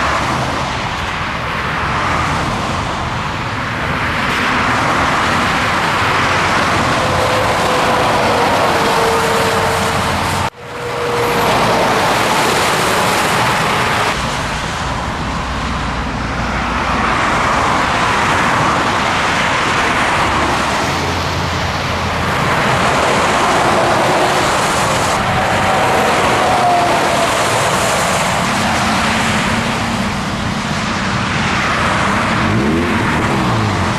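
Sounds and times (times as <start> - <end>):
truck engine: 0.0 - 33.9.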